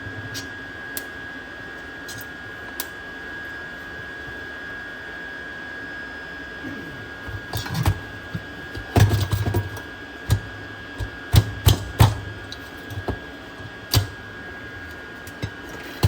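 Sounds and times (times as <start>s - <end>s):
tools clicking and knocking: 7.3s - 14.2s.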